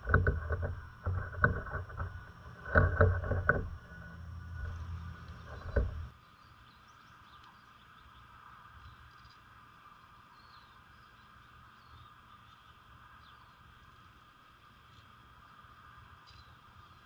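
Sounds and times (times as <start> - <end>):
bird pecking on wooden platform: 0.0 - 6.1.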